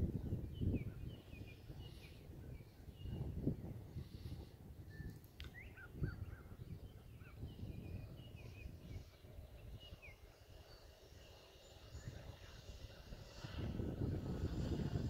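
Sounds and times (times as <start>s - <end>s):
faint songbirds chirping: 0.0s - 15.0s
wind on microphone: 0.0s - 15.0s.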